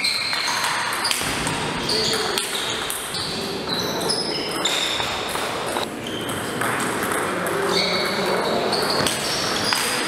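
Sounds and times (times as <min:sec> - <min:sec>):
busy hall background: 0:00.0 - 0:10.0
short high squeaks: 0:01.9 - 0:05.0
ping-pong balls clicking: 0:02.1 - 0:03.2, 0:04.6 - 0:10.0.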